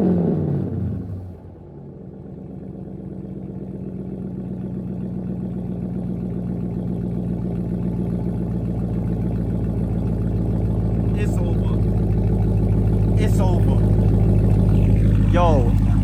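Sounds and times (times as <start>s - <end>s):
car engine idling: 0.9s - 16.0s
engine revving: 9.8s - 16.0s.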